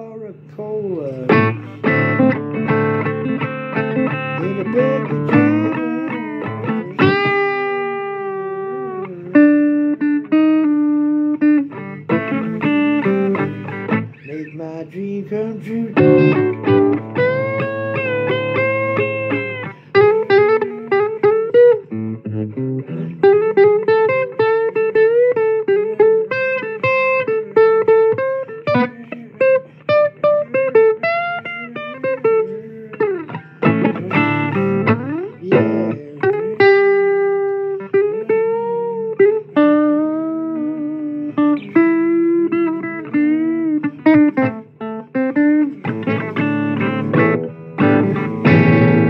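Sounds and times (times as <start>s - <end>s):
electric guitar solo: 0.0s - 14.8s, 15.5s - 49.0s
bass line: 16.0s - 19.6s.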